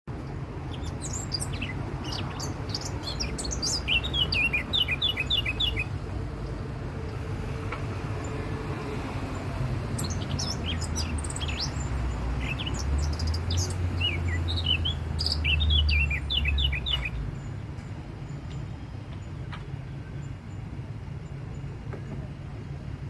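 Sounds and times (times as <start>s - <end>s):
songbird chirping: 0.7s - 7.2s, 8.2s - 17.6s.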